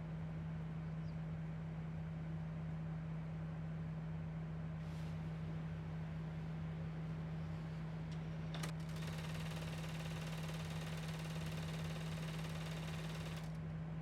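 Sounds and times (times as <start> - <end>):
sewing machine stitching: 8.7 - 13.6.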